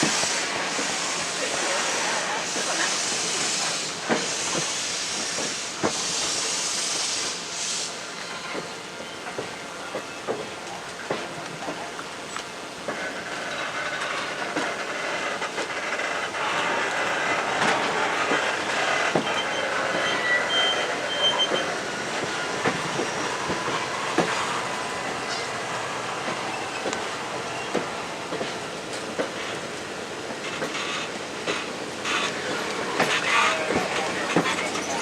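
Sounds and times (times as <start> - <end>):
train rumble: 0.0 - 35.0
train wheels knocking on rail joints: 4.0 - 6.0, 12.8 - 20.2, 21.5 - 25.6, 26.2 - 29.6, 30.2 - 35.0
high-pitched wheel squeals: 19.2 - 21.8.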